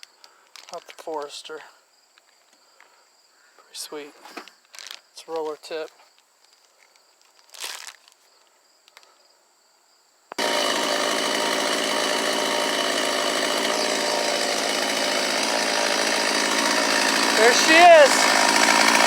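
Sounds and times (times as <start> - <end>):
brief rustle: 4.2 - 8.3
chainsaw running: 10.3 - 19.0.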